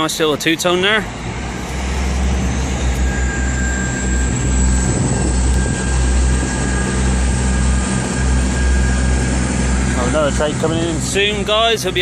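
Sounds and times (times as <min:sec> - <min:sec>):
faint high whine: 0:00.0 - 0:12.0
train diesel engines droning: 0:00.0 - 0:12.0.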